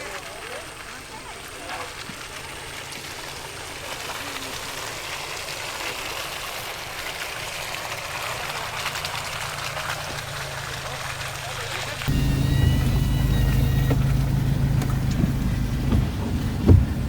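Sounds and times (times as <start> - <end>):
rain hissing: 6.3 - 17.0
low rumble: 12.1 - 17.0.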